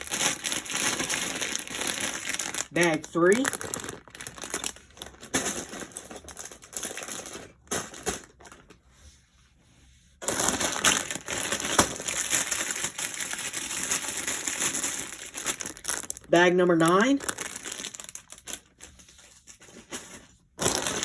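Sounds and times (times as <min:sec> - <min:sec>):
plastic bags crinkling: 0:00.0 - 0:08.8, 0:10.2 - 0:21.0.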